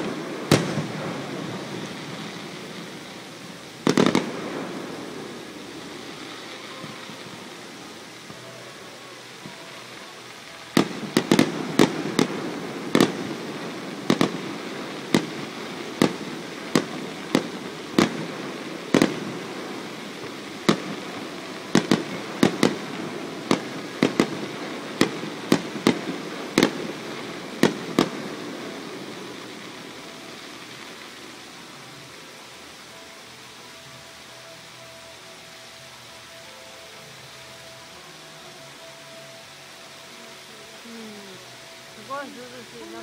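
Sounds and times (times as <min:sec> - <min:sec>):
firework shells bursting: 0:00.0 - 0:08.6, 0:10.3 - 0:31.1.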